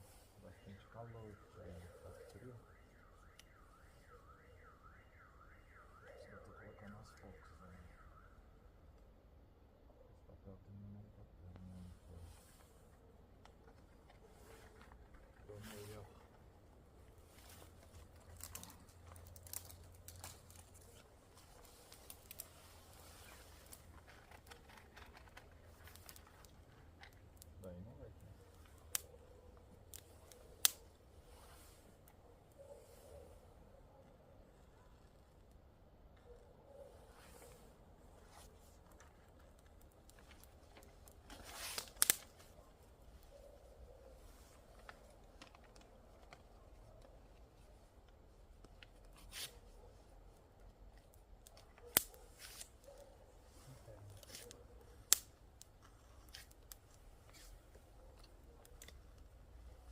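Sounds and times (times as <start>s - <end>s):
small campfire crackling: 0.0s - 59.9s
paper and kindling rustling: 13.5s - 27.3s, 37.0s - 47.8s, 51.6s - 55.0s
tearing or scraping rush: 17.2s - 27.2s, 40.1s - 42.6s, 49.0s - 49.9s, 51.8s - 55.2s, 55.8s - 59.0s
sharp snaps: 27.3s - 31.0s, 39.6s - 42.6s, 51.0s - 53.2s, 53.8s - 59.3s.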